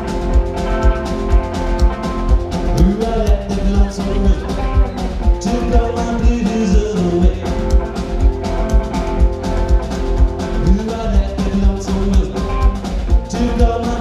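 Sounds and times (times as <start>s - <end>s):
drums beating: 0.0s - 14.0s
rockabilly band playing: 0.0s - 14.0s.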